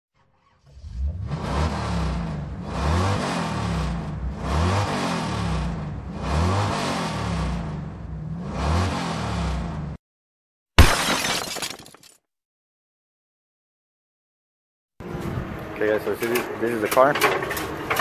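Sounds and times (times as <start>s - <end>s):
car engine revving: 0.4s - 10.0s.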